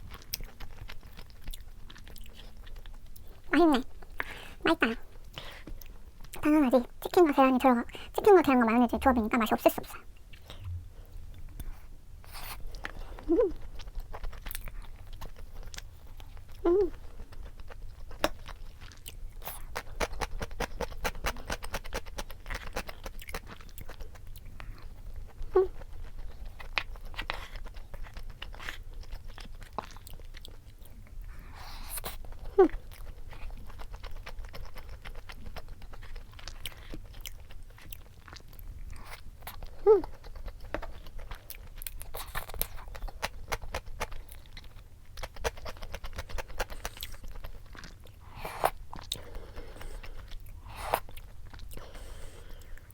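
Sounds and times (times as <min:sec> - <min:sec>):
wet chewing: 0:00.0 - 0:06.5, 0:11.4 - 0:52.9
food crunching: 0:12.4 - 0:52.9.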